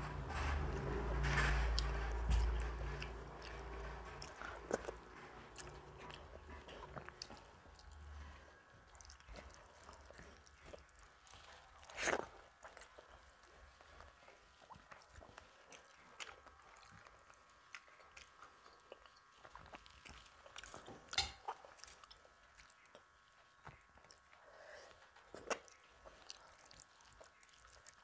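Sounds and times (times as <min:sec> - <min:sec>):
chewing with wet mouth clicks: 0:01.8 - 0:28.0.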